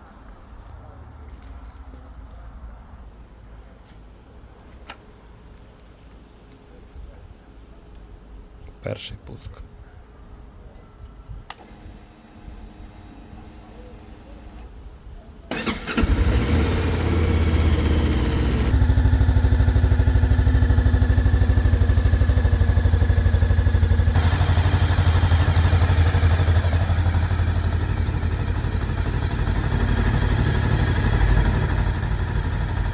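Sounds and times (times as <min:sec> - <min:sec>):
motorcycle engine starting and idling: 0:11.5 - 0:14.8, 0:15.5 - 0:32.9.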